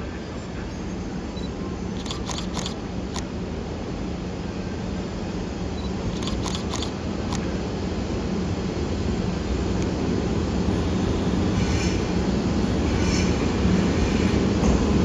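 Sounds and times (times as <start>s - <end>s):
electric locomotive rumble and hum: 0.0s - 15.0s
camera shutter clicks: 2.0s - 3.3s, 6.2s - 7.5s.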